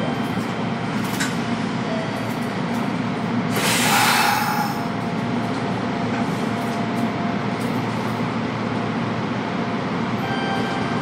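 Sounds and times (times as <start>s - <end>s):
train onboard equipment hum: 0.0s - 11.0s
loud air hiss: 3.5s - 4.8s.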